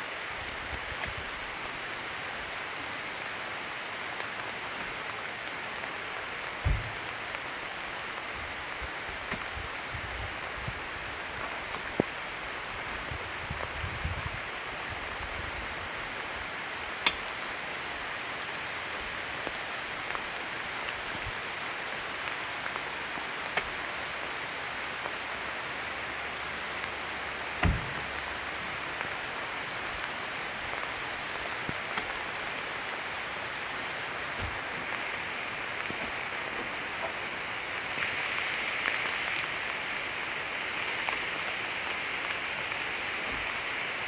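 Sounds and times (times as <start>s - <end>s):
rain hiss: 0.0s - 44.0s
heavy thud: 6.6s - 7.0s.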